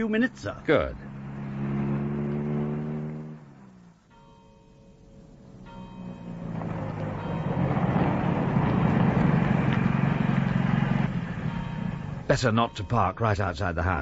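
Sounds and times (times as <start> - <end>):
car engine running: 0.0 - 4.0, 5.2 - 12.3.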